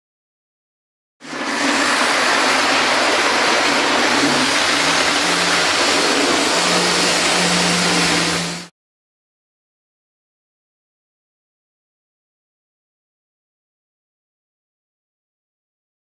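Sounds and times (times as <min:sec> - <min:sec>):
diesel engine running: 0:01.3 - 0:08.7
low hum: 0:03.5 - 0:08.7.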